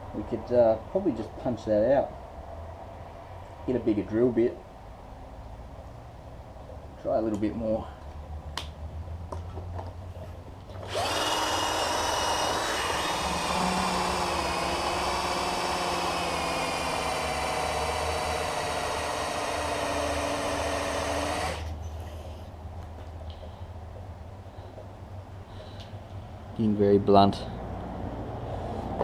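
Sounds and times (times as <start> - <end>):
electric drill grinding metal: 10.8 - 21.8.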